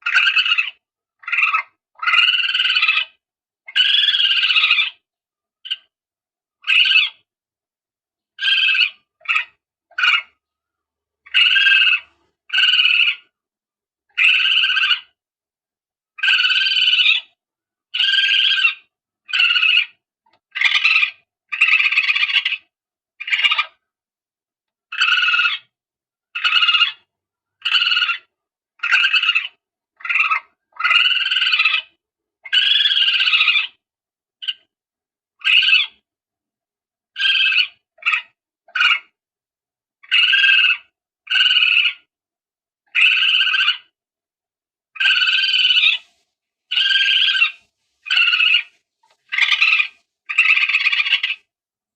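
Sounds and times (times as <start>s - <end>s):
shrill civet calls: 0.0s - 5.0s, 6.6s - 7.2s, 8.4s - 10.4s, 11.2s - 13.3s, 14.1s - 15.2s, 16.2s - 23.8s, 24.9s - 25.7s, 26.4s - 33.8s, 35.4s - 36.0s, 37.2s - 39.2s, 40.0s - 42.1s, 42.9s - 43.9s, 45.0s - 51.5s.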